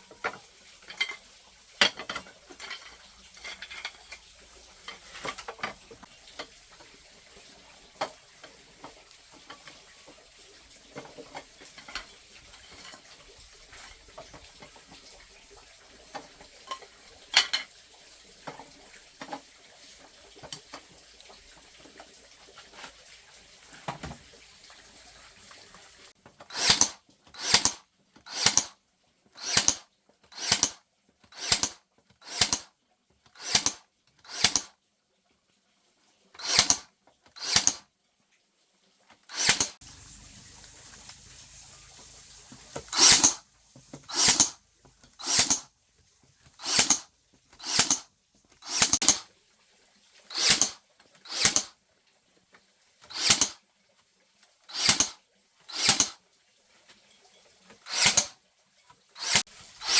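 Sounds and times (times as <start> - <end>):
hand tool scraping bamboo: 26.4 - 28.7, 29.4 - 32.7, 33.3 - 34.7, 36.4 - 37.8, 39.3 - 45.7, 46.3 - 49.3, 50.2 - 51.7, 53.0 - 53.6, 54.7 - 56.2, 57.7 - 58.4, 59.2 - 59.9.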